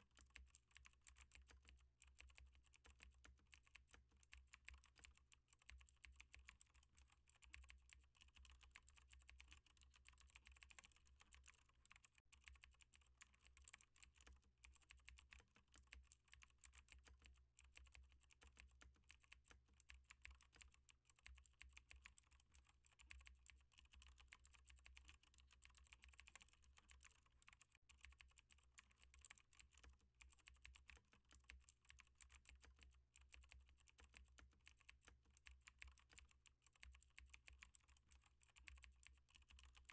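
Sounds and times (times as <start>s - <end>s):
keyboard typing: 0.1s - 39.9s.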